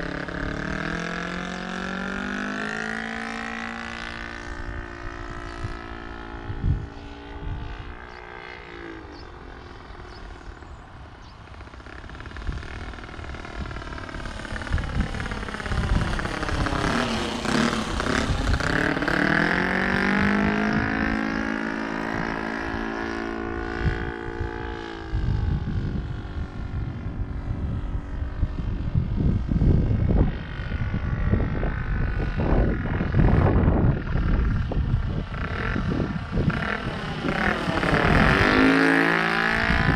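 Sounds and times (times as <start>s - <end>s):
model airplane engine in flight: 0.0s - 39.9s
wind buffeting microphone: 0.0s - 39.9s.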